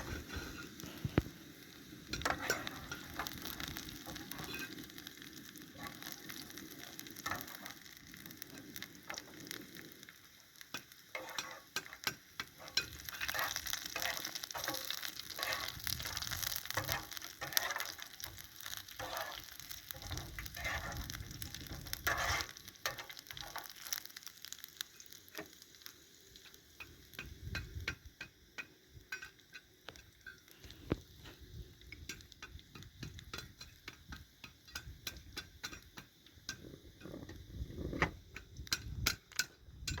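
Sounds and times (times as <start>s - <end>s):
utensil scraping a pan: 0.0s - 1.2s, 2.1s - 5.0s, 10.7s - 24.0s
food sizzling in a pan: 0.0s - 40.0s.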